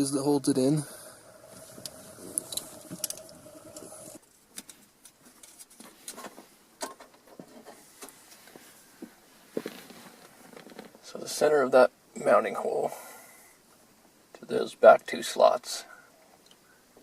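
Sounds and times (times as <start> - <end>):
faint steady hum: 0.0 - 4.8, 7.6 - 17.0.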